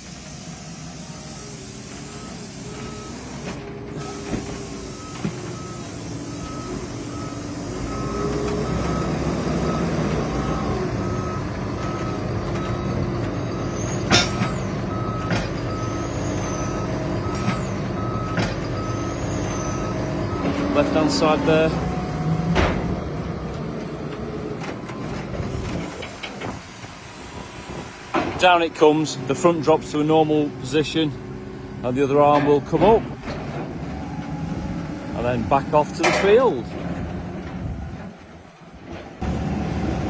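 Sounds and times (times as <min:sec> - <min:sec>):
reversing alarm beeping: 0:00.0 - 0:22.4
tractor engine running under load: 0:00.0 - 0:40.0.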